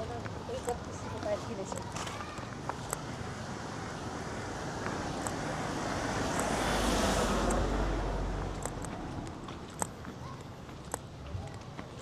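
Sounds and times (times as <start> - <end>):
vehicle passing by: 3.4 - 9.8.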